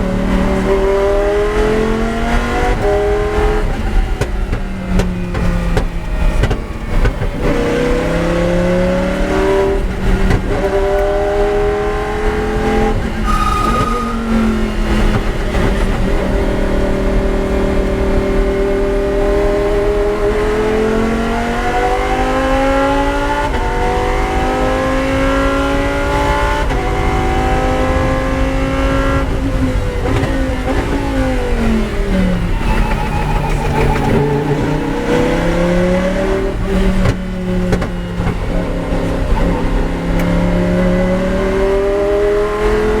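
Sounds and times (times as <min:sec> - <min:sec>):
race car engine accelerating: 0:00.0 - 0:43.0.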